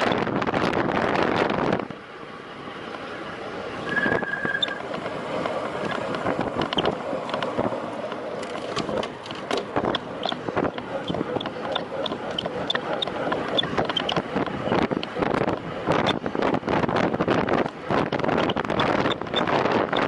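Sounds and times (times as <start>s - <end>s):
outdoor road noise: 0.0s - 20.0s
wind buffeting microphone: 0.0s - 20.0s
short high beep: 3.8s - 4.8s
scattered clicks: 4.1s - 16.2s.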